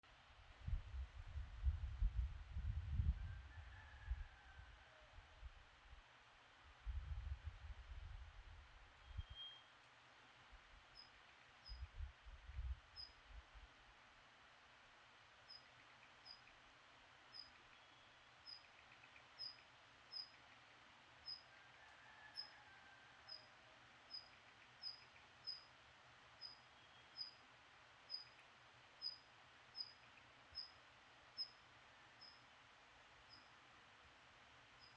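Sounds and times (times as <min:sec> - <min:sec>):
songbird high chirp: 0:09.0 - 0:09.8, 0:13.0 - 0:13.2, 0:17.3 - 0:22.7, 0:24.1 - 0:25.7, 0:26.4 - 0:27.4, 0:28.1 - 0:30.8, 0:31.4 - 0:31.6, 0:32.2 - 0:32.5, 0:33.2 - 0:33.6.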